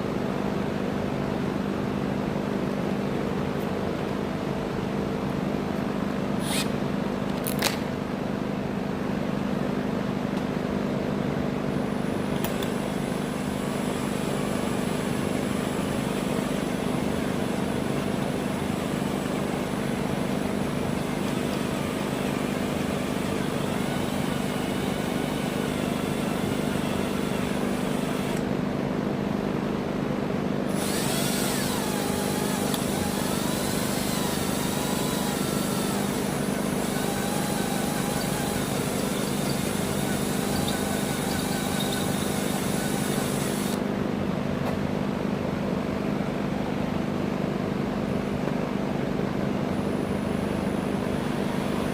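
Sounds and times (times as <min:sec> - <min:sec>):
drill bit squealing in metal: 0:06.4 - 0:06.7, 0:30.8 - 0:43.8
electric drill motor running: 0:06.4 - 0:06.8, 0:11.7 - 0:28.5, 0:30.6 - 0:43.8, 0:50.0 - 0:51.9.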